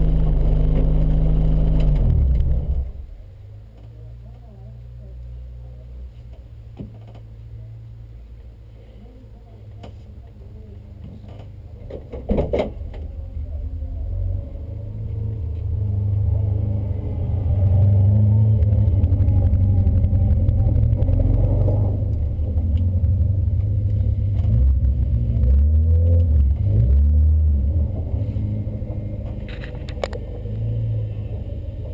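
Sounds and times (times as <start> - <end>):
car engine running hard: 0.0 - 3.5, 12.9 - 31.9.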